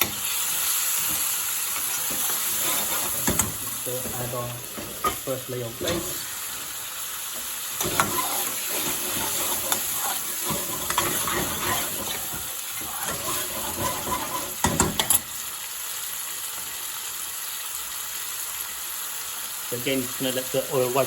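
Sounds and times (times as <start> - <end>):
gravy sizzling and bubbling in oil: 0.0 - 21.0
spoon clattering against pan: 1.8 - 3.7, 7.8 - 15.3.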